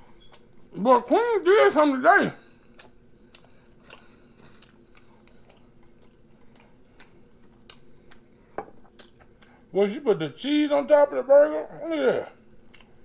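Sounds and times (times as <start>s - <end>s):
faint steady hum: 0.0s - 13.0s
chewing mouth clicks: 2.6s - 9.6s, 12.6s - 13.0s.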